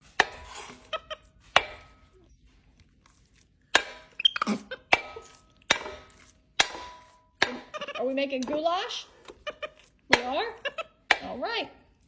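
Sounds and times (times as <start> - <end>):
knife chopping food: 4.8 - 11.4.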